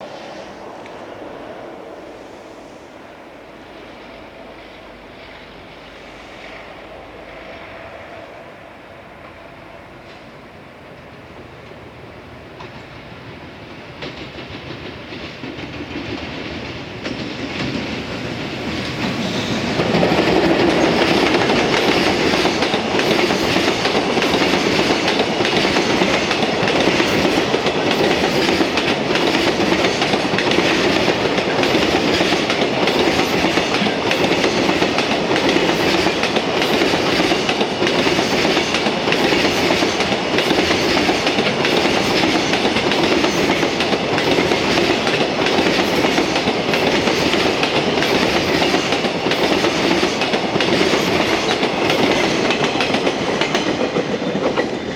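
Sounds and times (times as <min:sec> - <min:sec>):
train wheels clattering over rail joints: 0:13.8 - 0:54.9.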